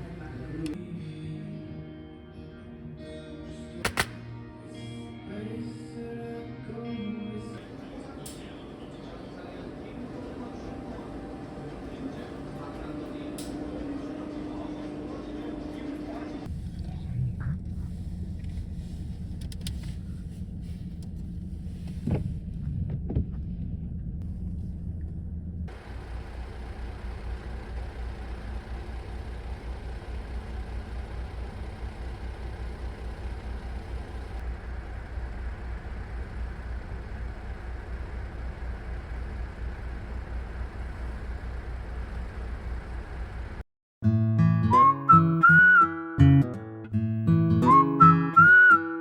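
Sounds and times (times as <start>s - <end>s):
car engine hum: 0.0s - 0.8s, 7.6s - 43.6s
clicks: 3.8s - 4.2s.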